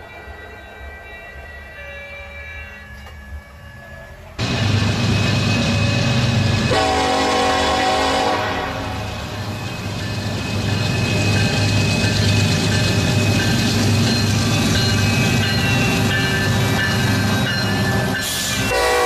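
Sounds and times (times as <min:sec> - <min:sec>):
train rumbling: 0:00.0 - 0:19.0
train horn: 0:06.7 - 0:09.2, 0:18.7 - 0:19.0.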